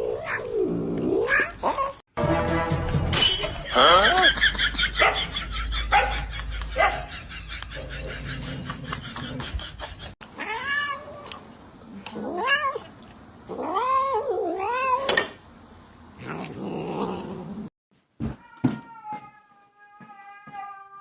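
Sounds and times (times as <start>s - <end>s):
cat meowing: 10.4s - 11.3s, 18.4s - 21.0s.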